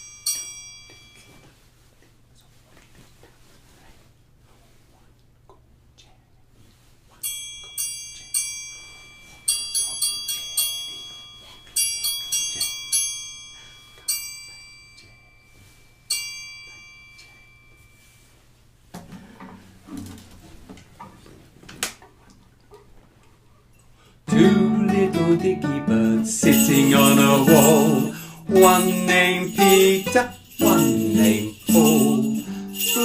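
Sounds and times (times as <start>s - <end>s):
bell-like metal percussion notes: 0.0s - 1.4s, 7.2s - 18.3s, 26.0s - 33.0s.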